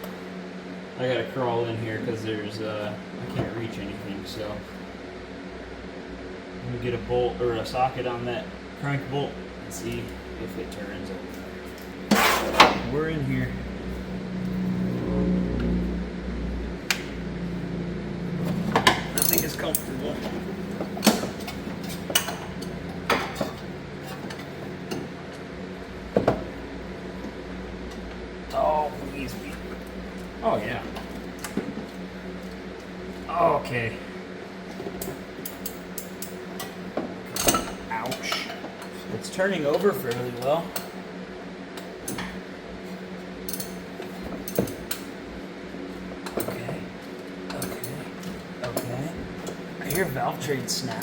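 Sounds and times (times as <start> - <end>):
steady low hum: 0.0 - 51.0
ratchet and socket clanking: 18.7 - 25.1, 43.4 - 45.1.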